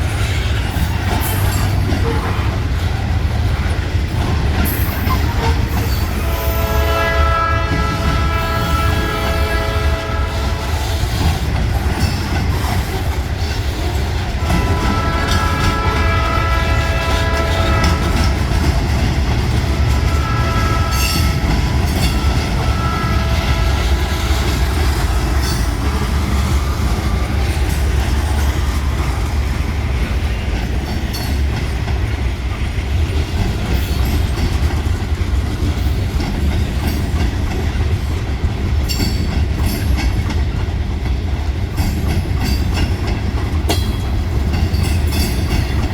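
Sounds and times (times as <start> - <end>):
train rumble: 0.0 - 45.9
wheels clacking over rail joints: 0.0 - 45.9
diesel locomotive horn: 1.4 - 3.0, 4.8 - 11.5, 14.2 - 29.3.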